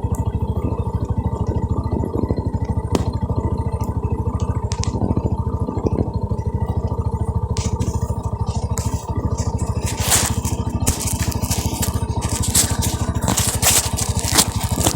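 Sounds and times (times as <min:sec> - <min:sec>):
motorcycle engine running: 0:00.0 - 0:14.9
crunching and scraping: 0:07.5 - 0:14.9.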